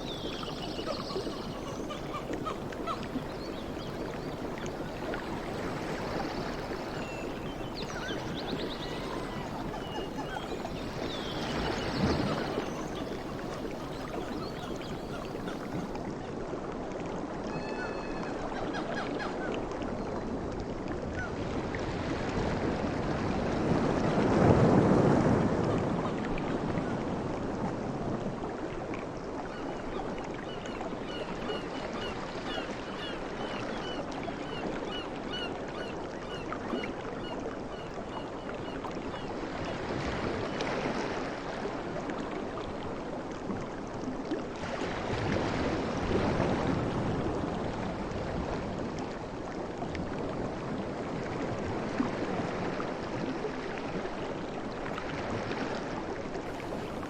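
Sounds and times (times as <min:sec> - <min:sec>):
ocean waves washing ashore: 0:00.0 - 0:16.6, 0:21.3 - 0:29.4, 0:44.5 - 0:57.0.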